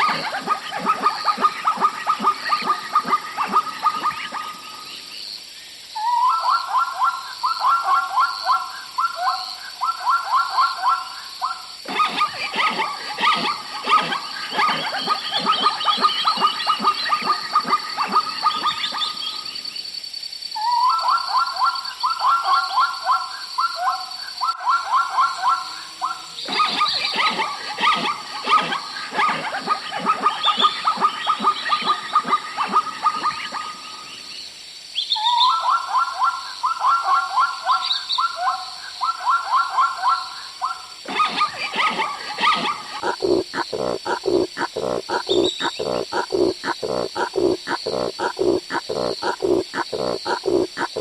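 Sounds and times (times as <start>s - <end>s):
animals calling in rapid notes: 0.0s - 4.9s, 11.8s - 19.6s, 26.4s - 34.3s, 41.0s - 51.0s
harsh low animal call: 41.8s - 51.0s.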